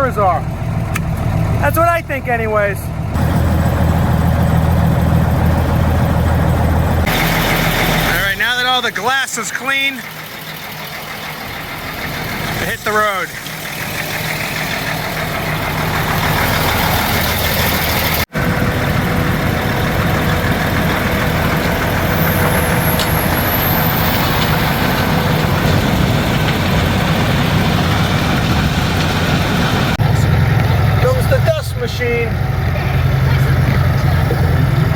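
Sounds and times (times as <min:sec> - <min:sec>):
truck diesel engine running: 0:00.0 - 0:34.9.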